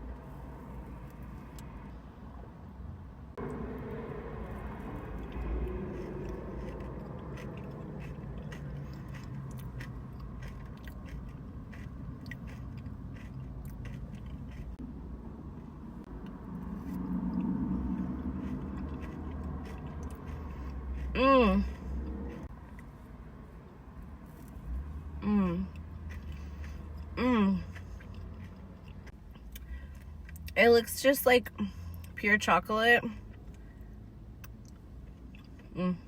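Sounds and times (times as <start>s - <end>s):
low hum-like sound: 0.0s - 30.6s
person chewing and biting cake: 4.4s - 14.8s, 16.7s - 22.9s, 25.7s - 30.4s.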